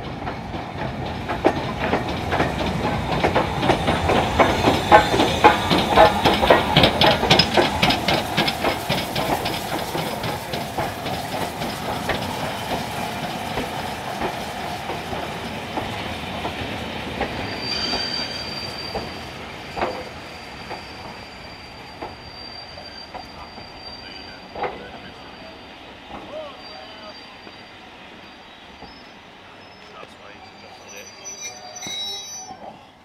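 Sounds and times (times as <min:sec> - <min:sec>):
train wheels clicking over rail joints: 0:00.0 - 0:32.8
high brake squeal: 0:17.2 - 0:33.0.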